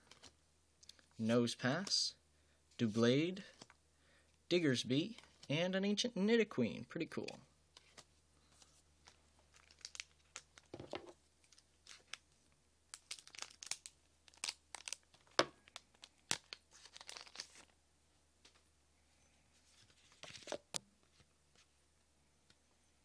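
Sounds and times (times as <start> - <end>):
foil wrapper tearing and crinkling: 9.5 - 10.7, 11.5 - 12.2, 12.9 - 17.7.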